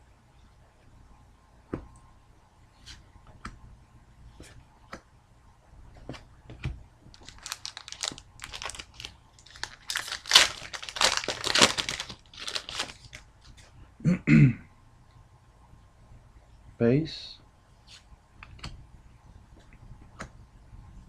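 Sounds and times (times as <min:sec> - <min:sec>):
foil wrapper tearing and crinkling: 0:07.2 - 0:13.2.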